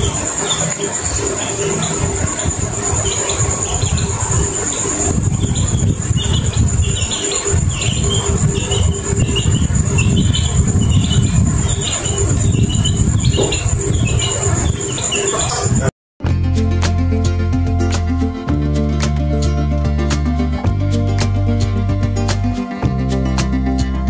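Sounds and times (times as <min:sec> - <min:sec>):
insects trilling: 0:00.0 - 0:15.9
low rumbling noise: 0:00.0 - 0:23.7.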